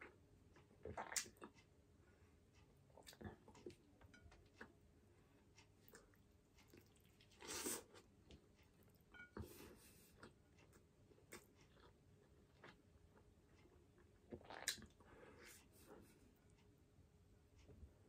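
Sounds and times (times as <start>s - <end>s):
person chewing food: 0.0s - 1.8s, 2.8s - 16.2s.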